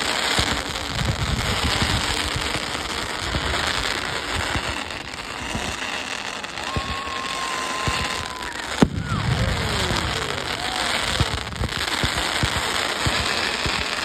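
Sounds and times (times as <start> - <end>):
crackling pops: 0.0 - 14.0
firework whistles: 0.0 - 14.0
firework bang: 4.4 - 14.0.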